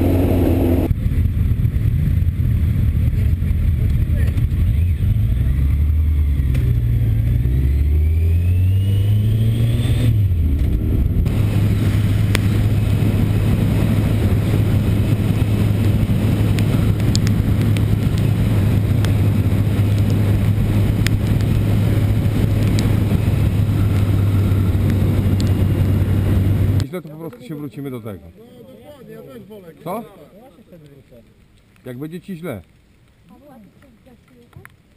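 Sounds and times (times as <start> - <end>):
motorcycle engine: 0.0 - 26.8
road and wind noise: 0.0 - 28.4.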